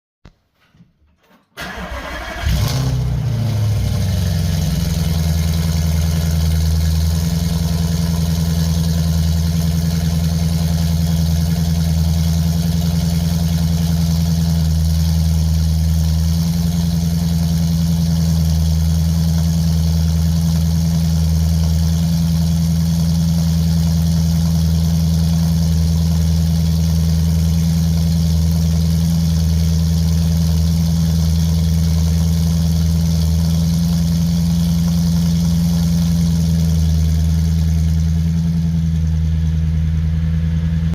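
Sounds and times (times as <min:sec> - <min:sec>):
starter motor cranking: 0:01.6 - 0:02.7
car engine idling: 0:01.6 - 0:40.9.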